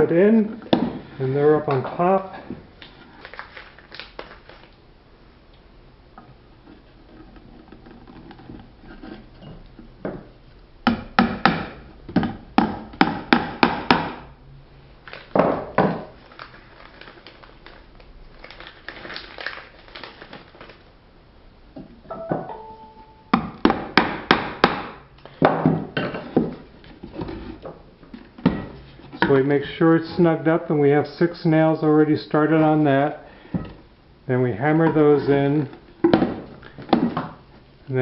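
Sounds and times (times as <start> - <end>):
hammer striking nails into wood: 10.9 - 14.2, 23.4 - 25.0.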